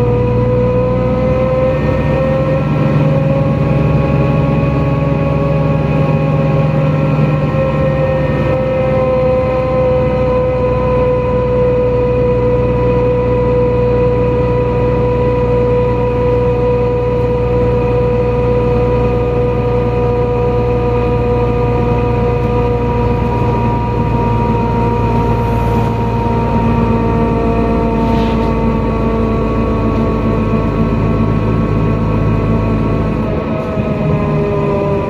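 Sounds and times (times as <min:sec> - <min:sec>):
bus engine rumble: 0:00.0 - 0:35.0
drivetrain whine: 0:00.0 - 0:35.0.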